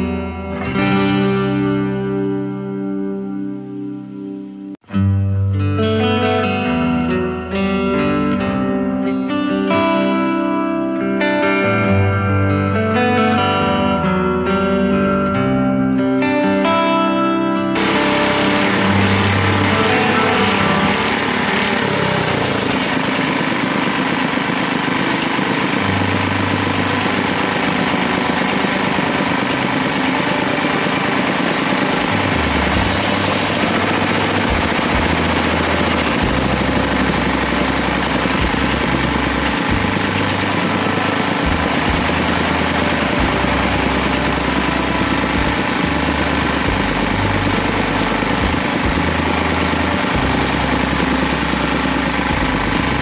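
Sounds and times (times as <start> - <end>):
drilling rig engine running: 17.8 - 53.0.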